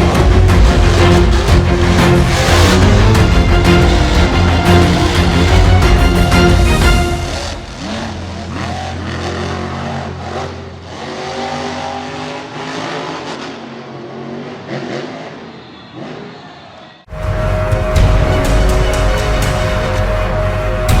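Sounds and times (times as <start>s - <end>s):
monster truck engines revving: 0.0s - 16.3s.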